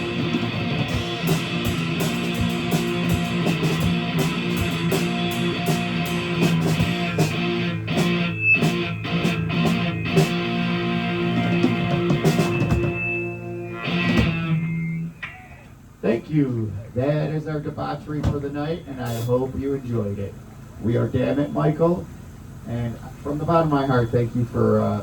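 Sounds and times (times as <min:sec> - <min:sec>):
drum and cymbal strikes: 0:00.0 - 0:15.0
electric guitar chords: 0:00.0 - 0:16.8.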